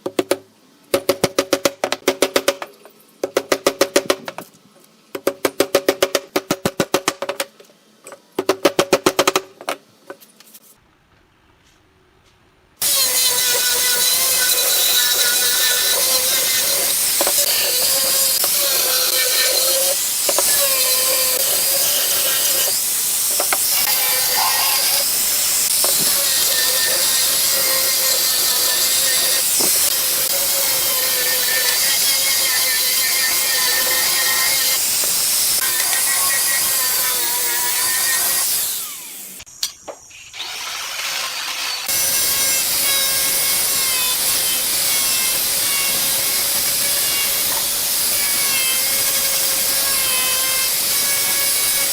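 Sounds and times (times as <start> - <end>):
power tool cutting wood: 12.8 - 39.5, 40.3 - 51.9.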